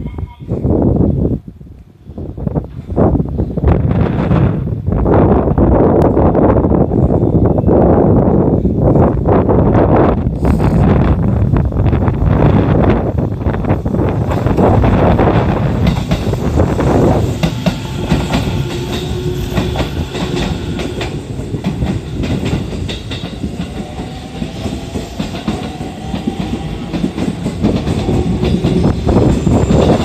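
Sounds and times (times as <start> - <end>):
train rumble: 0.0 - 30.0
train wheels clicking over rail joints: 14.1 - 30.0.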